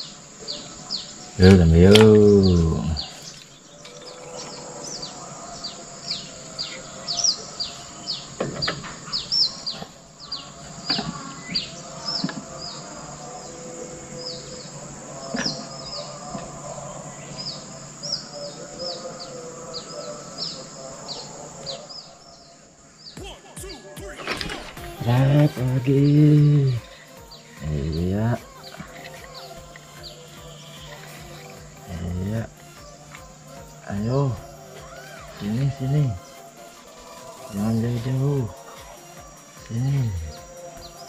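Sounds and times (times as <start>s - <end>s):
small birds chirping: 0.0s - 41.0s.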